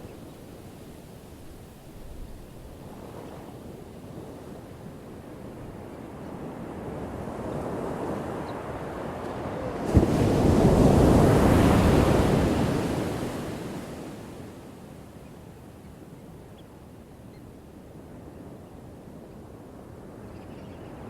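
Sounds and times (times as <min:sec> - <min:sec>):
ocean waves breaking on shore: 0:00.0 - 0:14.9.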